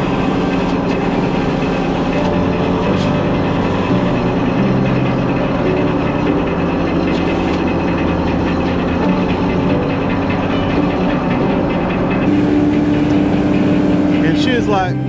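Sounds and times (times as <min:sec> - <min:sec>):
engine humming steadily: 0:00.0 - 0:15.0.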